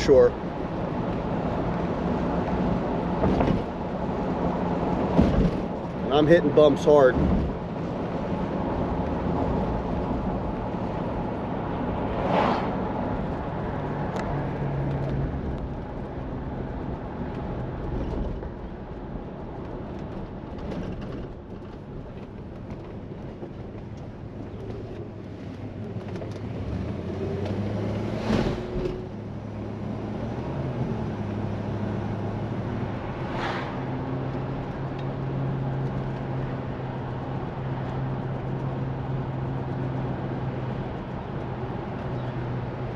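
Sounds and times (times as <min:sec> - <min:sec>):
road noise: 0:00.0 - 0:42.9
car hitting bumps knocks: 0:05.0 - 0:05.8.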